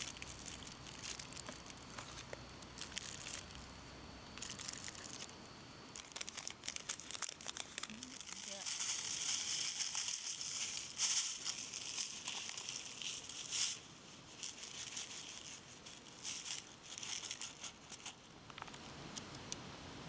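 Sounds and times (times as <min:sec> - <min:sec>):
crinkling and rustling: 0:00.0 - 0:03.7, 0:04.3 - 0:18.9.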